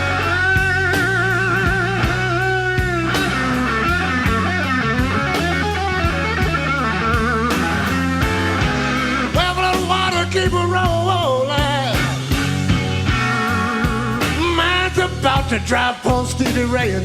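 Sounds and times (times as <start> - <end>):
bass and drums: 0.0 - 17.0
lead electric guitar: 0.0 - 17.0
person singing: 9.2 - 12.2, 13.4 - 17.0.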